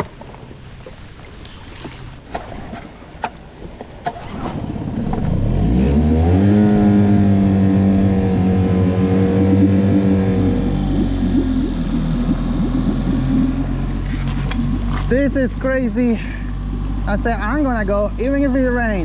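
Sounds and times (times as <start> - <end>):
outboard motor throttling up: 4.0 - 19.0.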